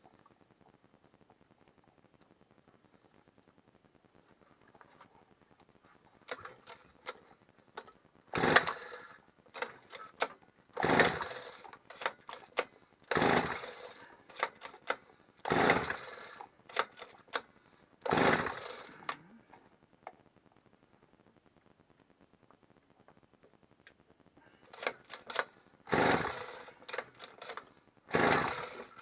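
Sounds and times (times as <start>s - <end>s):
recoil starter cord pulls: 6.3s - 19.2s, 24.6s - 29.0s.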